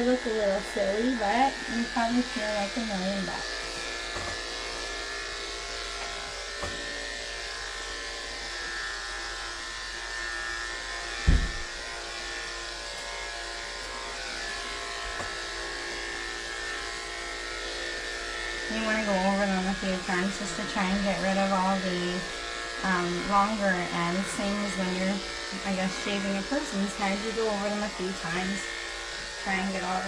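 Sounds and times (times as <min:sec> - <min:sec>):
electric clippers buzzing: 0:00.0 - 0:30.0
low thump: 0:11.2 - 0:11.7.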